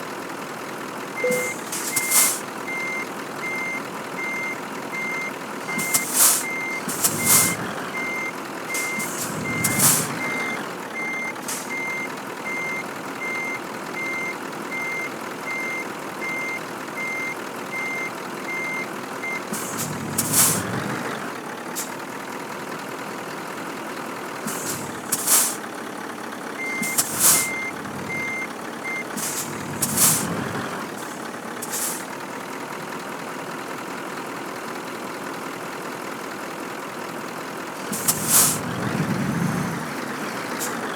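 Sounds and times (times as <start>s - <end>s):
truck engine running: 0.0s - 40.9s
air-brake hisses: 1.2s - 2.6s, 5.6s - 10.7s, 11.3s - 11.9s, 19.4s - 21.0s, 21.7s - 22.0s, 24.4s - 25.7s, 26.7s - 28.3s, 29.1s - 32.2s, 37.8s - 40.9s
truck reversing alarm beeps: 1.2s - 22.0s, 24.4s - 25.8s, 26.4s - 32.2s, 37.6s - 40.9s.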